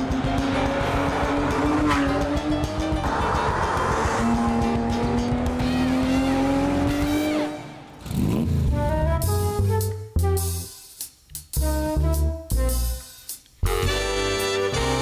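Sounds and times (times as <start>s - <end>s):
car engine revving through a gear: 0.0s - 8.7s
background music: 0.0s - 15.0s
sweeping whoosh: 0.1s - 6.8s.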